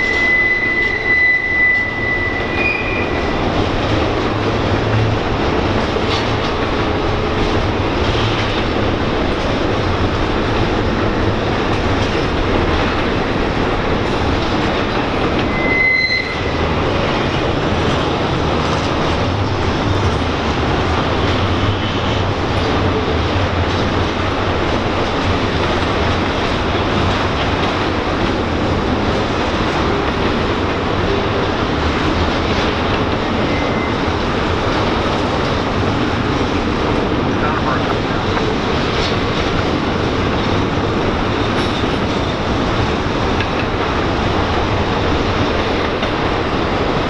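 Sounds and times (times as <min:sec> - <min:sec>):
high wheel squeal: 0:00.0 - 0:03.5, 0:15.4 - 0:16.8, 0:33.3 - 0:34.1
freight train cars rumbling: 0:00.0 - 0:47.0.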